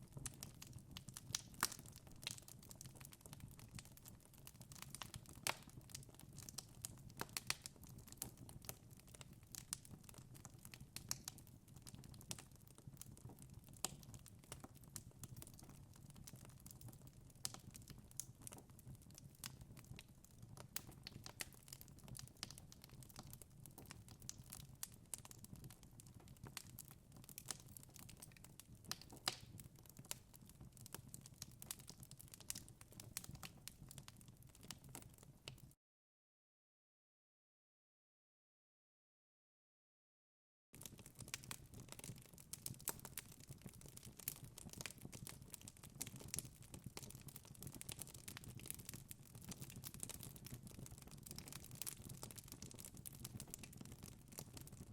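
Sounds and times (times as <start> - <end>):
wood fire crackling: 0.1 - 35.6, 40.8 - 54.9.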